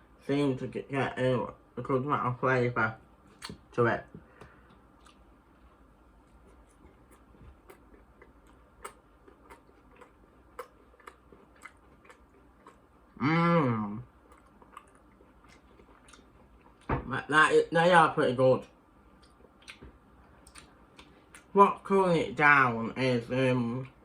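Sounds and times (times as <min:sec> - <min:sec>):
person chewing crunchy food: 0:04.4 - 0:13.2, 0:14.0 - 0:16.9, 0:19.1 - 0:21.5.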